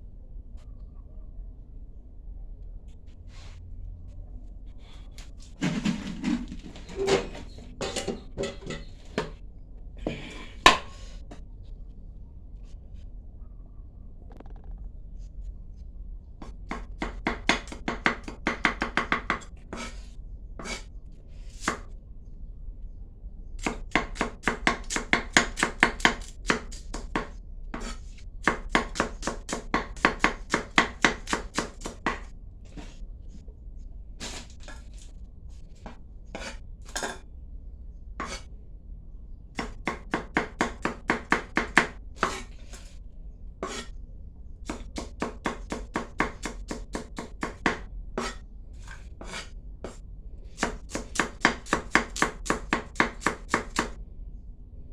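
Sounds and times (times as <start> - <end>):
knife chopping on cutting board: 10.1 - 11.0, 23.6 - 32.9, 38.2 - 38.4, 39.6 - 42.5, 43.6 - 43.9, 44.7 - 48.4, 49.2 - 50.0, 50.6 - 54.0.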